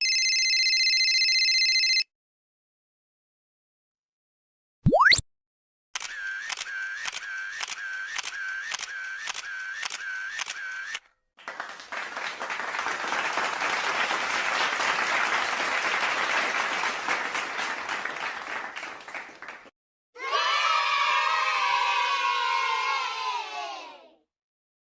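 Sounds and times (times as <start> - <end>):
clapping and applause: 11.4 - 19.8.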